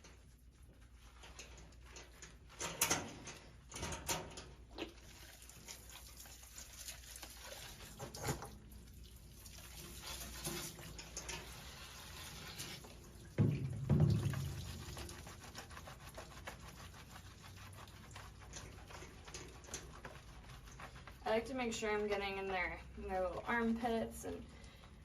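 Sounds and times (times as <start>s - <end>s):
wet scrubbing and splashing: 4.6s - 23.3s.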